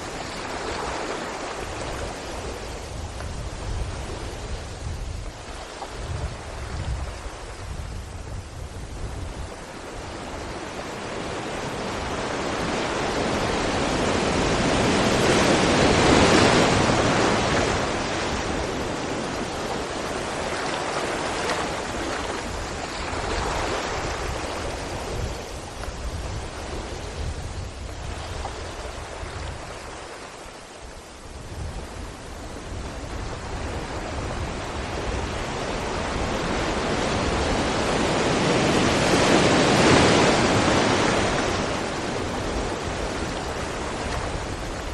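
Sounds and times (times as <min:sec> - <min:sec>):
waves crashing against rocks: 0:09.6 - 0:30.5, 0:32.7 - 0:44.9.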